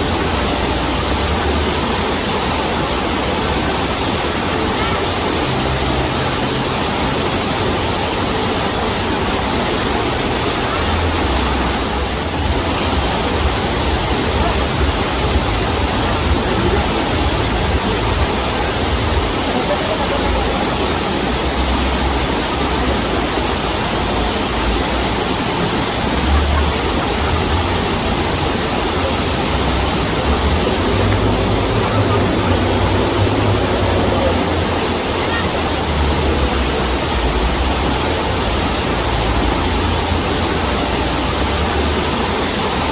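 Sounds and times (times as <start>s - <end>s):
waterfall roaring: 0.0s - 42.9s.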